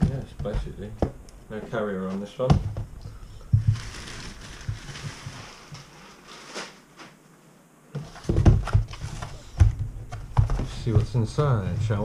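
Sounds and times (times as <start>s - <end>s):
cardboard packaging rustling: 3.4s - 7.0s.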